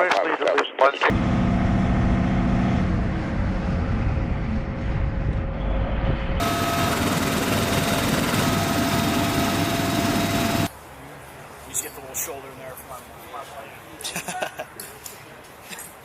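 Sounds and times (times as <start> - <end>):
helicopter rotor and turbine: 1.1 - 10.7
thin high whine: 1.2 - 10.7.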